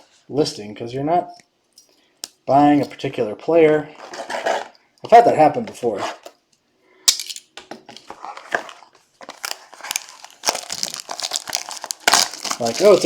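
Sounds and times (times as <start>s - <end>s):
plastic wrap crinkling: 8.0s - 13.0s.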